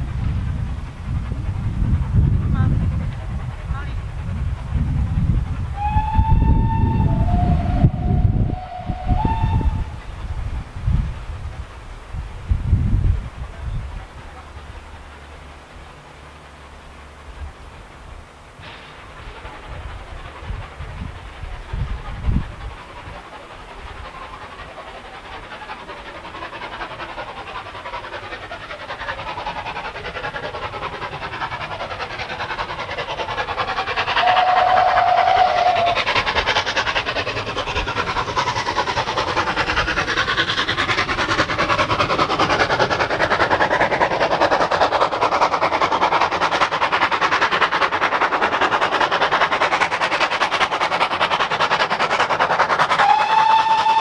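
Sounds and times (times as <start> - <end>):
steam train running: 0.0 - 54.0
train whistle blast: 5.8 - 10.0, 34.2 - 35.9, 53.0 - 54.0.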